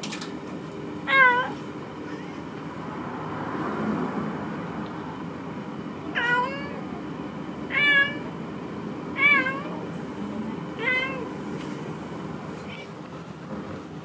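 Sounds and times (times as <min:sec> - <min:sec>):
cat meowing: 0:01.1 - 0:02.4, 0:06.1 - 0:06.9, 0:07.7 - 0:08.3, 0:09.2 - 0:09.8, 0:10.8 - 0:11.3.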